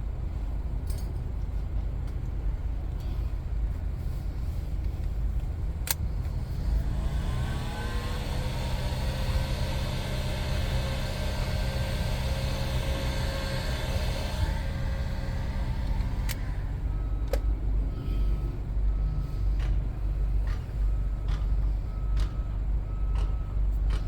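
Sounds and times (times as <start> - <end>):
heat gun fan whine: 5.8 - 18.3.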